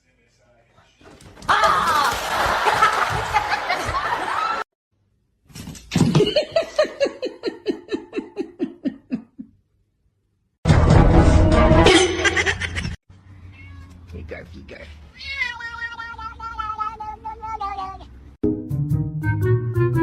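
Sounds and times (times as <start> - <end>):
person laughing: 6.2 - 9.6, 11.8 - 13.0.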